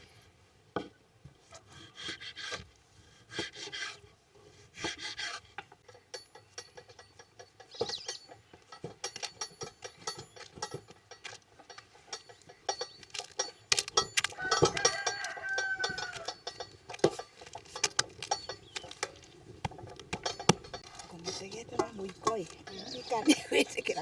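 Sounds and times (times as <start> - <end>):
sharp clicks and knocks: 5.6 - 23.2.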